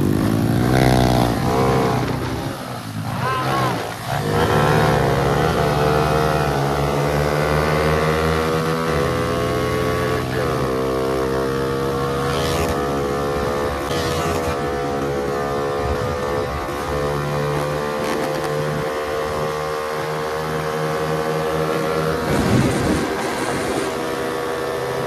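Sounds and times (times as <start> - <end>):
motorcycle engine at high revs: 0.0 - 25.0
wind on microphone: 15.7 - 17.0, 22.2 - 24.2.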